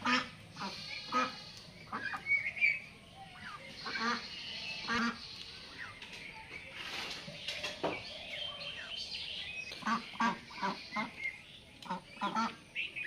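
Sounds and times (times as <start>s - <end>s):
geese honking: 0.0s - 2.8s, 3.8s - 5.8s, 9.8s - 12.6s
geese chirping calls: 0.0s - 13.0s.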